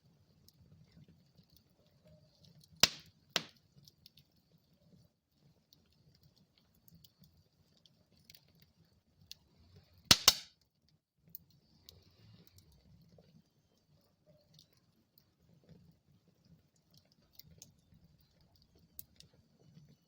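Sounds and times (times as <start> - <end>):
wood fire crackling and popping: 1.2 - 4.5, 5.3 - 10.5, 13.8 - 20.0.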